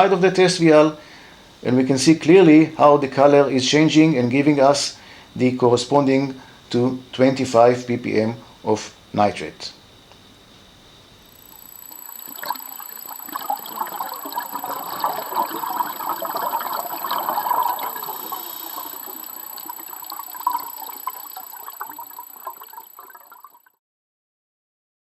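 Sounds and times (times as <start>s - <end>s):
water splashing and bubbling: 11.5s - 23.7s.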